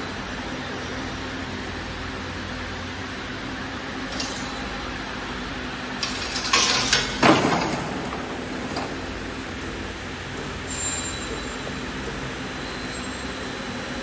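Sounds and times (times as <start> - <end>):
wire bending machine humming: 0.0 - 12.6
metallic clinks and clanks: 4.0 - 9.9.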